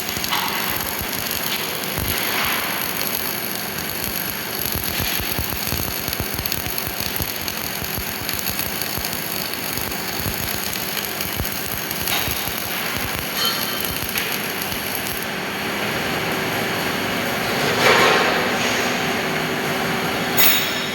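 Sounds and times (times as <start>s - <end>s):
welding arc crackling: 0.0s - 15.8s.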